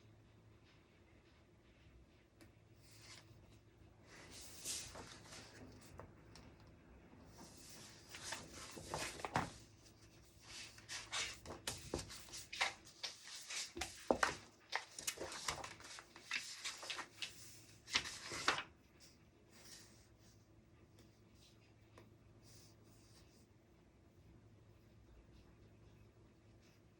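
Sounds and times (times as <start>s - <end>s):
rustling and rubbing on desk: 2.8s - 6.4s, 7.3s - 20.4s.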